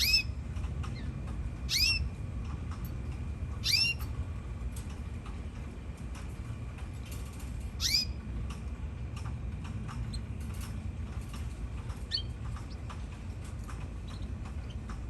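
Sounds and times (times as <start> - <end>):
canary calls and chirps: 0.0 - 2.2, 3.6 - 4.1, 7.7 - 8.2, 11.4 - 15.0
steady low hum: 0.0 - 15.0.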